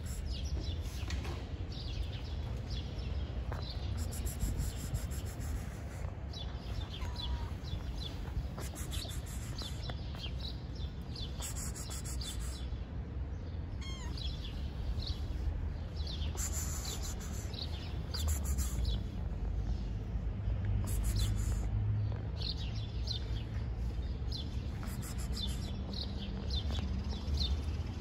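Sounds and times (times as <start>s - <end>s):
outdoor background rumble: 0.0s - 28.0s
small birds chirping: 0.0s - 28.0s.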